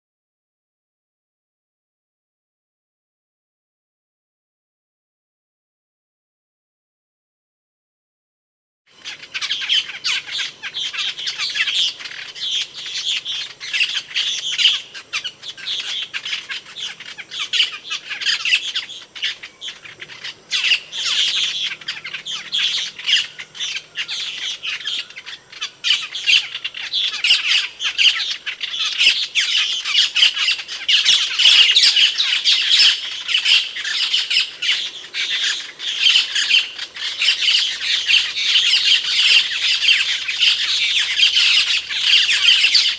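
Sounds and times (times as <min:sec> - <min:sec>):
starling calls and chatter: 0:08.9 - 0:42.9.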